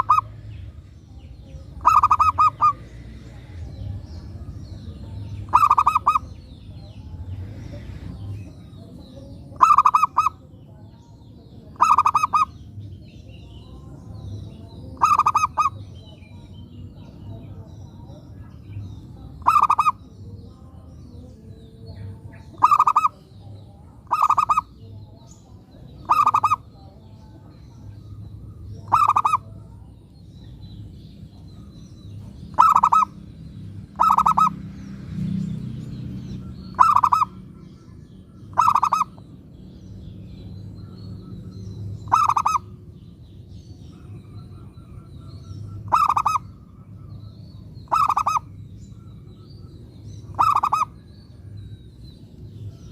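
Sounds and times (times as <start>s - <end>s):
dove cooing: 0.0s - 0.8s, 1.7s - 2.9s, 5.4s - 6.3s, 9.6s - 10.4s, 11.8s - 12.6s, 15.0s - 15.8s, 19.3s - 20.0s, 22.4s - 23.3s, 24.0s - 24.8s, 26.0s - 26.7s, 28.5s - 29.6s, 32.5s - 33.2s, 33.9s - 34.6s, 36.4s - 37.6s, 38.4s - 39.2s, 42.1s - 42.8s, 43.9s - 49.1s, 50.2s - 51.1s.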